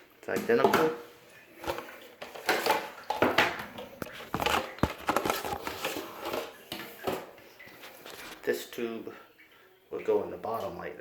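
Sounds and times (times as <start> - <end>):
plastic parts clicking and knocking: 1.6 - 7.3
packaging crinkling and rustling: 3.6 - 7.2, 7.8 - 8.4.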